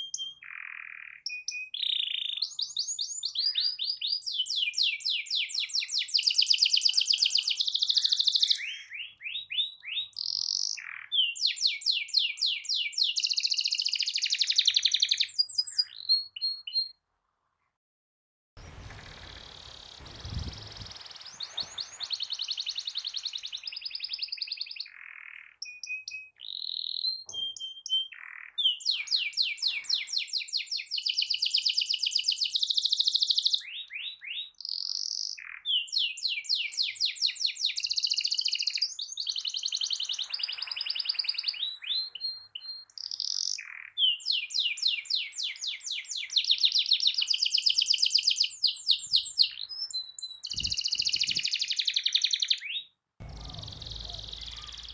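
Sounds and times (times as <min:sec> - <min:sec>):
canary singing trills: 0:48.9 - 0:54.9.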